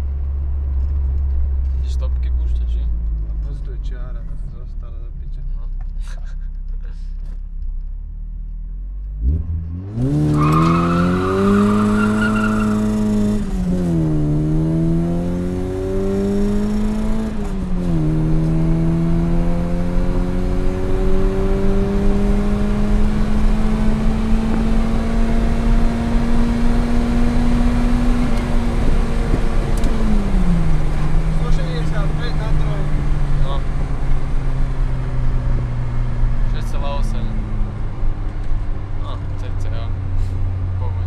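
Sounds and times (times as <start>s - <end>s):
road noise: 0.0s - 41.0s
car engine accelerating hard: 8.7s - 41.0s
wind noise: 20.7s - 31.4s.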